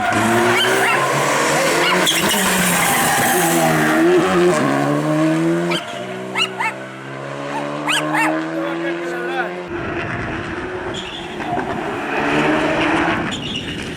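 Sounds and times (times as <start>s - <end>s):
rally car engine at full throttle: 0.0s - 13.9s.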